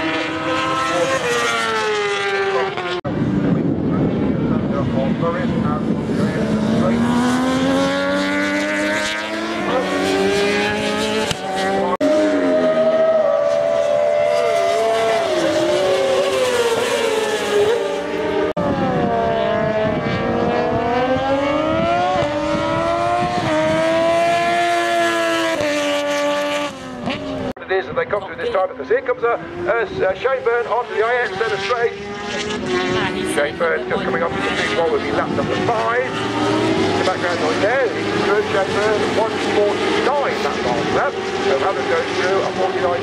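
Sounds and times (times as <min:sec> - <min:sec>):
racing motorcycles passing: 0:00.0 - 0:43.0.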